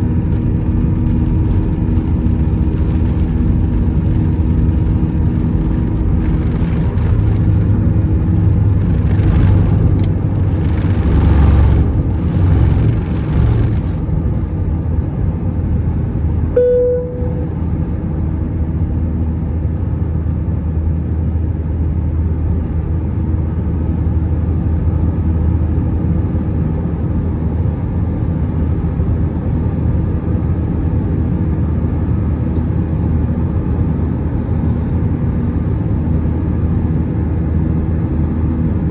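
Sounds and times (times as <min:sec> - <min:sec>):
aircraft cabin engine drone: 0:00.0 - 0:38.9
short ding: 0:16.6 - 0:17.6.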